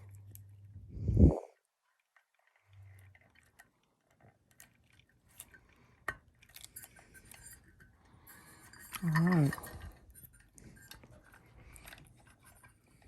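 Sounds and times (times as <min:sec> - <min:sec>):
small hard parts clicking and tapping: 0:01.6 - 0:13.0.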